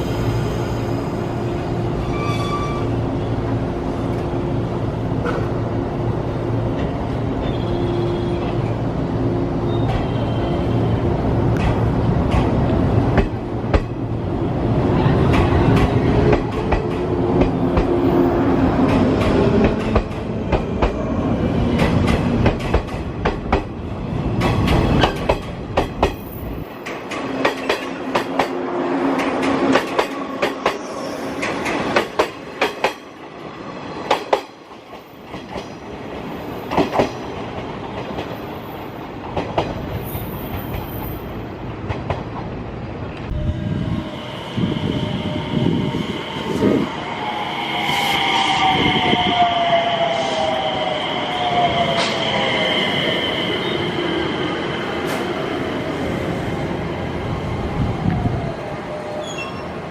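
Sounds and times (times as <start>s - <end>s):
train rumble: 0.0s - 33.3s.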